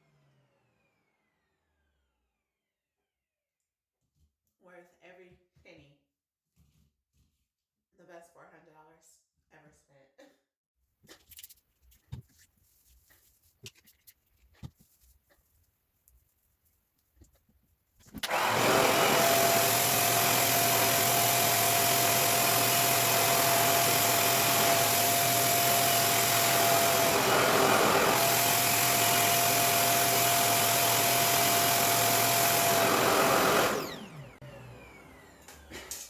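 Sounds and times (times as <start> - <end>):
hair dryer blower running: 18.2 - 36.0.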